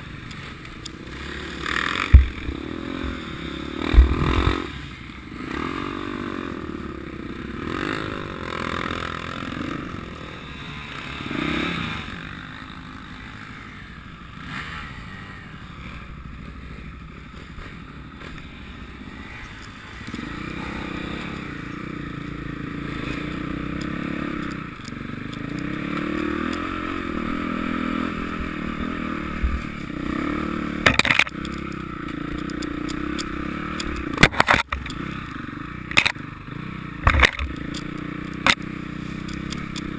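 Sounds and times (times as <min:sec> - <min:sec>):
motorcycle engines revving: 0:00.0 - 0:39.9
sharp knocks: 0:02.1 - 0:02.6.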